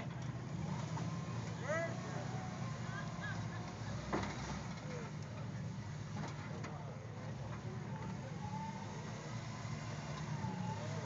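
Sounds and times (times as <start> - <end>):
engine running steadily: 0.0 - 11.0
faint voices: 1.4 - 9.0.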